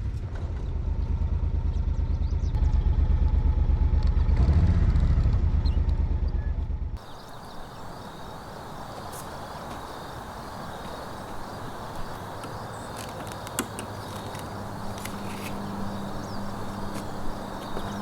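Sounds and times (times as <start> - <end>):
low hum: 0.0 - 18.0
insects chirping: 7.0 - 18.0
outdoor hiss: 7.0 - 18.0
sharp clicks: 12.4 - 15.6.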